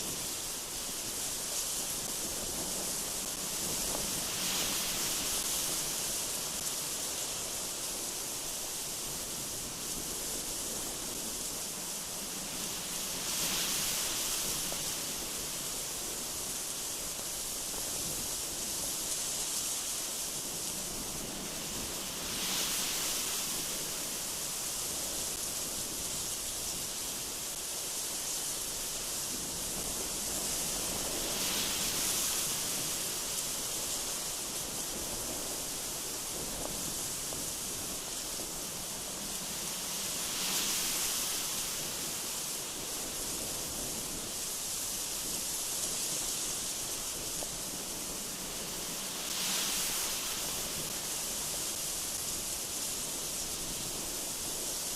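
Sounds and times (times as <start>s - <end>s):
gusty wind hissing: 0.0s - 54.9s.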